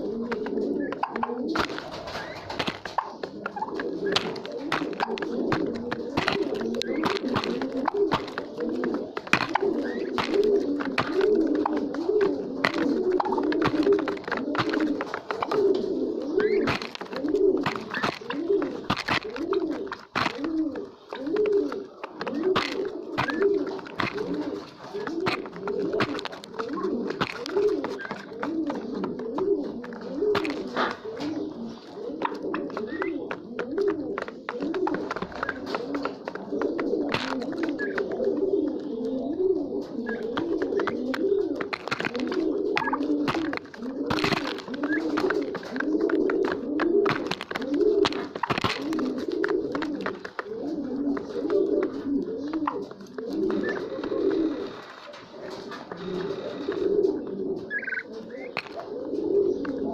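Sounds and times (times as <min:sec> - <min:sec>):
pigeons cooing: 0:00.0 - 0:59.9
sharp clicks and taps: 0:00.3 - 0:15.8, 0:16.4 - 0:31.3.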